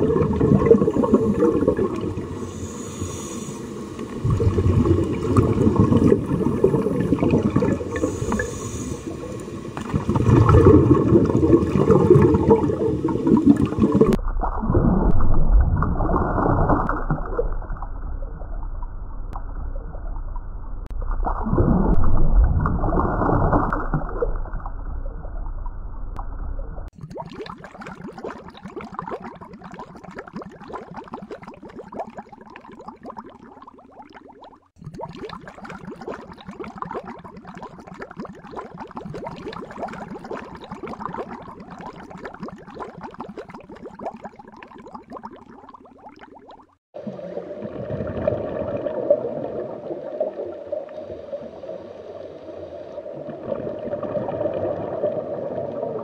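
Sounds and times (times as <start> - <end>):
diver exhaling bubbles underwater: 0.0 - 18.6, 21.2 - 25.1, 26.8 - 51.4, 53.0 - 56.0
regulator hissing inhale: 2.3 - 4.1, 7.9 - 9.6.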